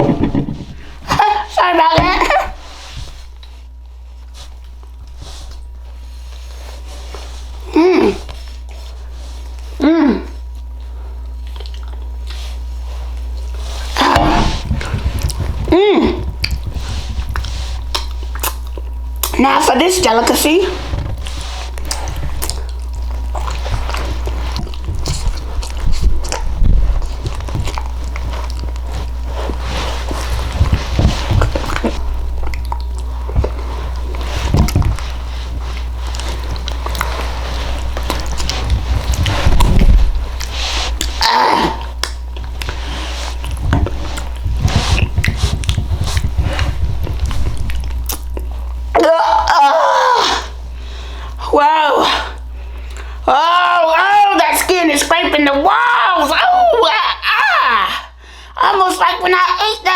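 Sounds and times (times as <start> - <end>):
chewing and biting food: 10.4 - 19.4, 20.2 - 48.9
wet mouth clicks and smacks: 11.4 - 12.4, 17.3 - 19.4, 31.5 - 33.6, 42.0 - 42.7, 47.1 - 48.8
low hum: 12.3 - 51.5.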